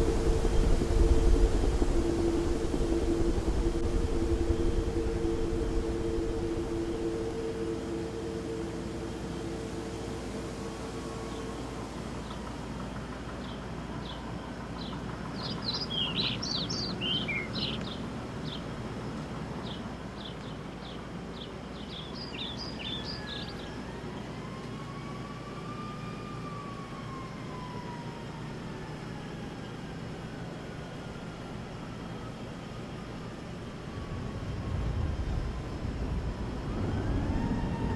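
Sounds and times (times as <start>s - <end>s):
faint distant tone: 0.0s - 12.0s
low outdoor background hum: 0.0s - 37.9s
small birds chirping: 13.3s - 24.3s.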